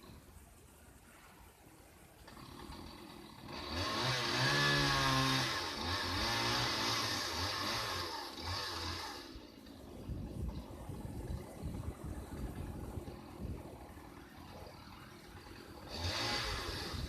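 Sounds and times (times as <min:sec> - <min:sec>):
chainsaw engine revving: 0:02.2 - 0:17.0.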